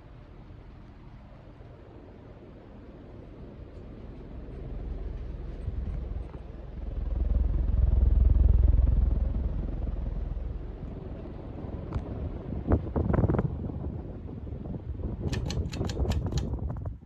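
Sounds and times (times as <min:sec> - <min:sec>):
ceiling fan running: 0:00.0 - 0:13.5, 0:14.7 - 0:17.0
sharp clicks: 0:15.3 - 0:16.6.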